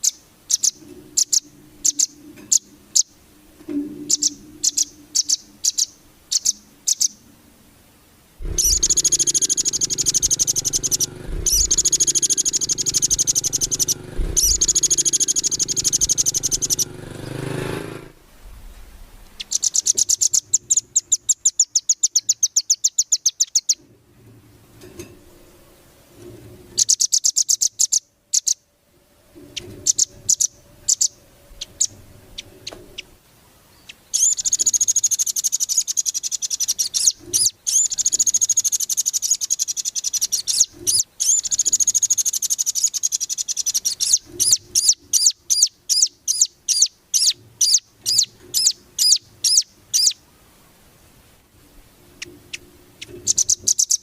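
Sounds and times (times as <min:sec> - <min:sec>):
bird trilling: 0:00.0 - 0:03.2, 0:04.0 - 0:07.2, 0:08.4 - 0:18.0, 0:19.4 - 0:23.8, 0:29.5 - 0:33.1, 0:34.1 - 0:50.2, 0:52.2 - 0:54.0.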